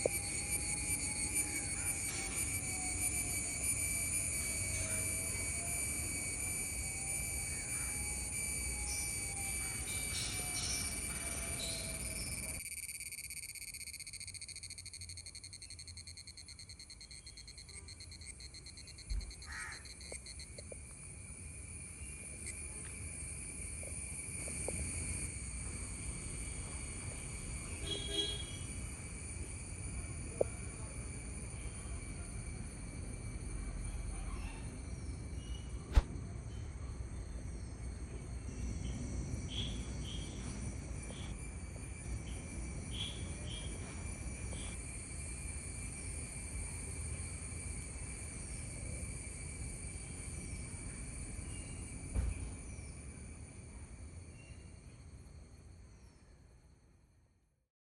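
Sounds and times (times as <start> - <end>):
cicada buzzing: 0.0 - 36.1, 37.6 - 55.0
sharp click: 35.9 - 36.1
thump: 35.9 - 36.2, 52.1 - 52.6.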